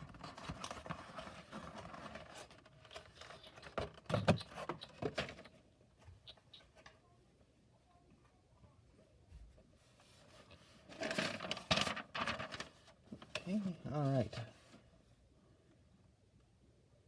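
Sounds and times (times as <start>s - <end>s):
cardboard parts rustling and clicking: 0.0s - 5.6s.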